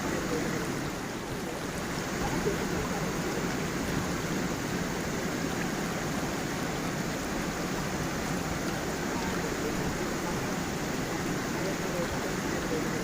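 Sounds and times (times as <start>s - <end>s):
waterfall and stream flowing: 0.0s - 13.0s.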